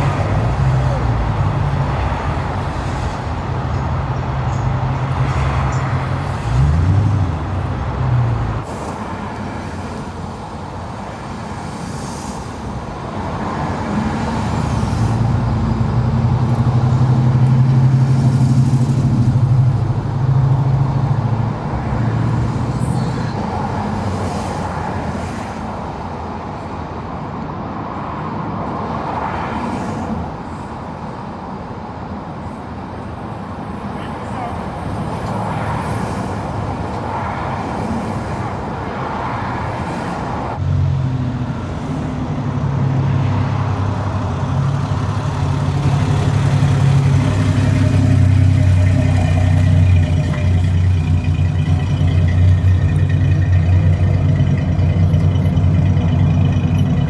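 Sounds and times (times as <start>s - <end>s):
engine revving: 0.0s - 8.7s, 40.6s - 57.0s
car engines running: 0.0s - 12.1s, 12.7s - 25.4s, 30.2s - 57.0s.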